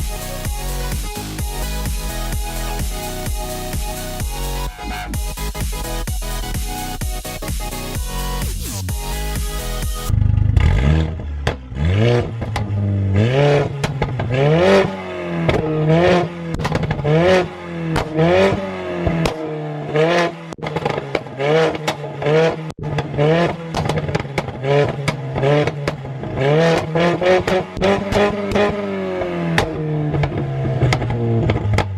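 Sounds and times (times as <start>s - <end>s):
car engine revving: 0.0s - 31.9s
exhaust pops and crackles: 10.0s - 12.9s, 13.5s - 19.5s, 20.1s - 31.9s.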